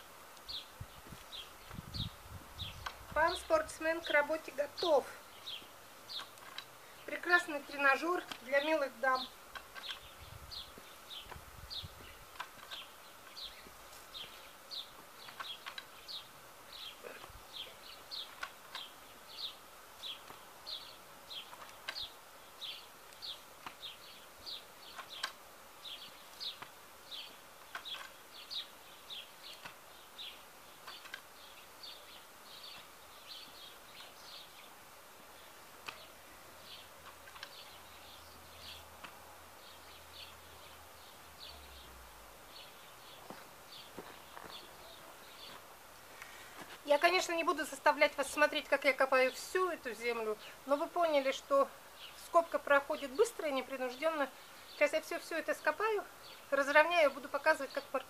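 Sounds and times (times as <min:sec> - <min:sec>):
small bird chirping: 0:00.4 - 0:45.7
faint clicks: 0:15.2 - 0:16.0, 0:24.8 - 0:25.4.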